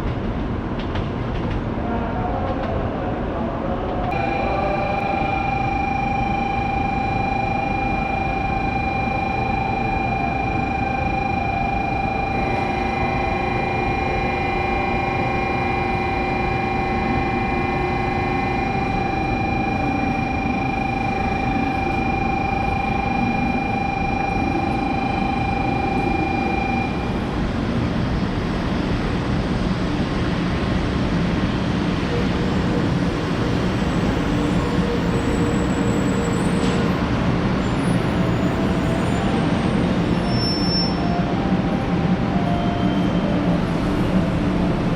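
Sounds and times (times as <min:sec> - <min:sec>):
train rumble: 0:00.0 - 0:08.7, 0:10.2 - 0:44.9
high electrical whine: 0:04.1 - 0:30.4.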